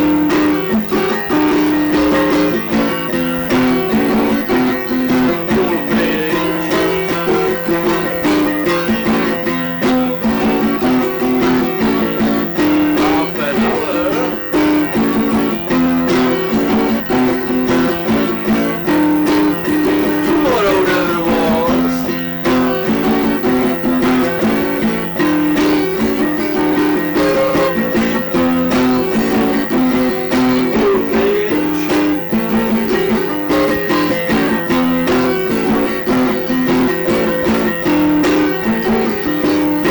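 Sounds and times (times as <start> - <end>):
plucked guitar figure: 0.1 - 31.7.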